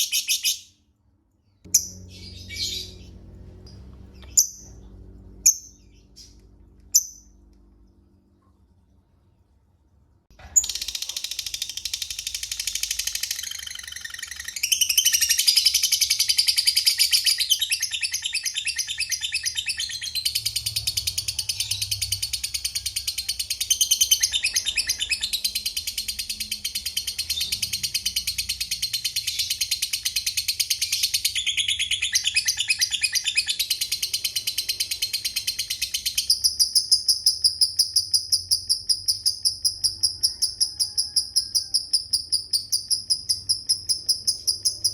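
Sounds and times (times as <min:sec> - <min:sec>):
lovebird high-pitched chatter: 0:10.6 - 0:44.9.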